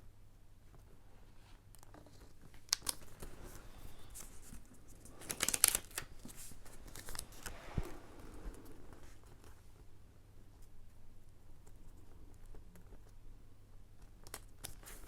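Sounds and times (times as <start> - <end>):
paper rustling: 1.8 - 9.6.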